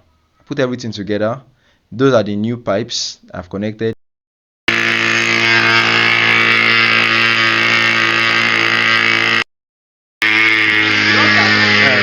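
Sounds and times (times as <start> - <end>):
model aircraft engine running: 4.7 - 9.5, 10.2 - 12.0.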